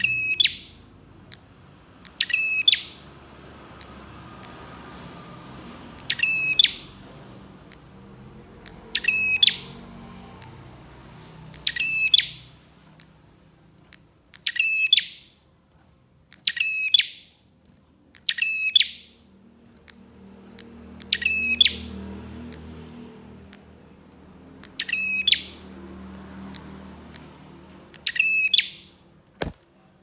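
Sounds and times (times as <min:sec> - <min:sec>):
bird call high ticking notes: 0:00.0 - 0:04.6, 0:05.9 - 0:07.0, 0:07.6 - 0:10.7, 0:11.5 - 0:13.2, 0:13.9 - 0:15.4, 0:16.3 - 0:17.4, 0:18.1 - 0:25.8, 0:26.4 - 0:29.0.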